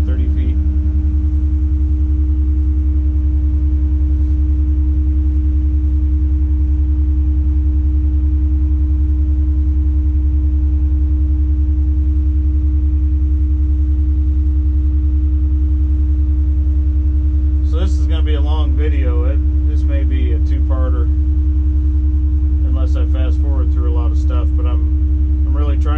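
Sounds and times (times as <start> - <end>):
crane diesel engine drone: 0.0 - 4.6, 17.5 - 25.9.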